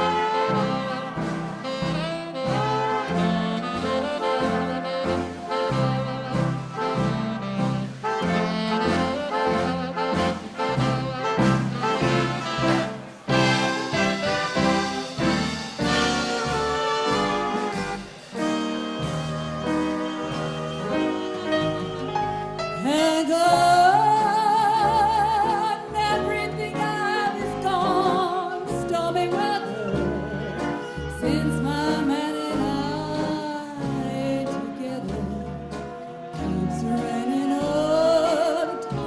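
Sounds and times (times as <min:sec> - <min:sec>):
big dance band playing: 0:00.0 - 0:39.0
woman singing with vibrato: 0:22.8 - 0:39.0.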